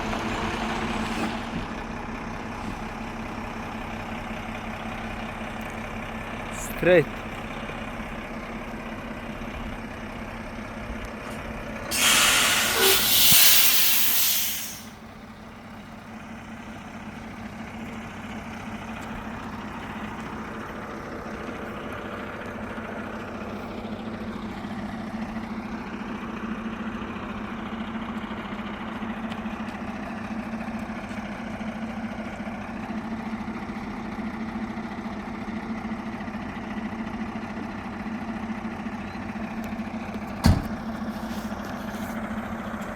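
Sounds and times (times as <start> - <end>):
truck engine running: 0.0 - 42.9
air brakes hissing: 11.9 - 15.0, 40.4 - 41.6.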